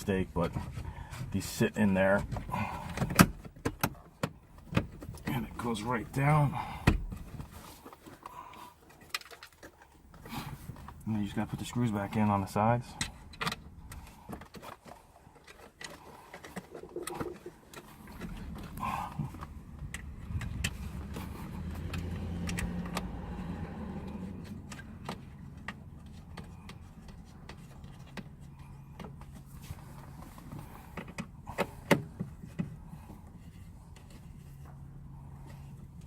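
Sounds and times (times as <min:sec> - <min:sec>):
low steady hum: 0:00.0 - 0:14.5.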